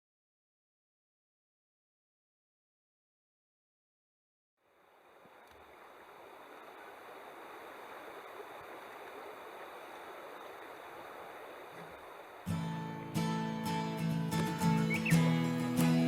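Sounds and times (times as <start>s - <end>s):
running water rushing: 4.6s - 16.0s.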